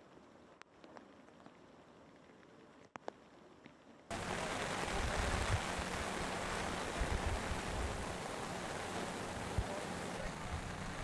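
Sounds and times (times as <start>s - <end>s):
wind and sea rushing: 4.1s - 11.0s
wind buffeting microphone: 4.1s - 11.0s.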